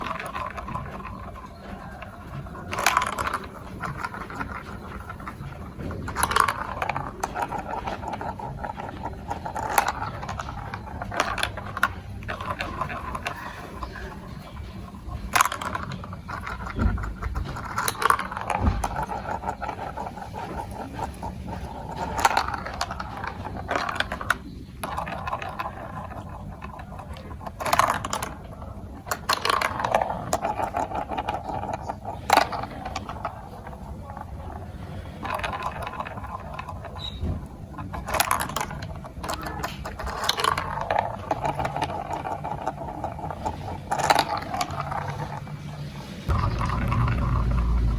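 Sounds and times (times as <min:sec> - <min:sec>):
marbles rolling through plastic run: 0:00.0 - 0:47.9.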